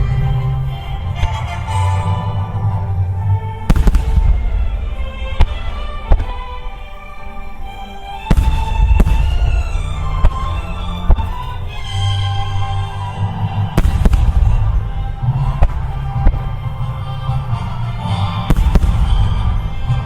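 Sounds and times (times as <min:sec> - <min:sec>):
music: 0:00.0 - 0:20.0
firework shells bursting: 0:03.7 - 0:12.5, 0:13.7 - 0:17.7, 0:18.4 - 0:20.0.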